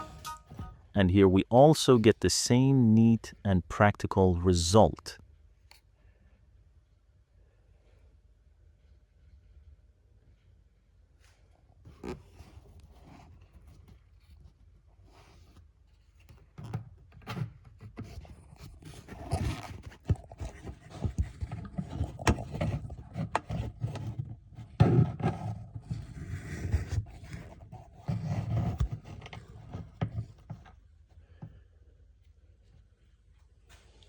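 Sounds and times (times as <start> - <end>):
handling noise scraping and rustling: 11.2 - 31.6.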